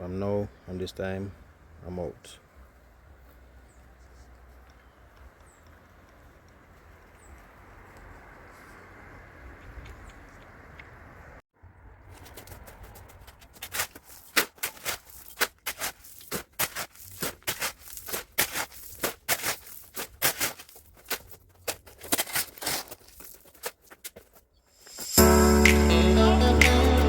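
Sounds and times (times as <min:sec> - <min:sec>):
music: 0:25.1 - 0:27.0.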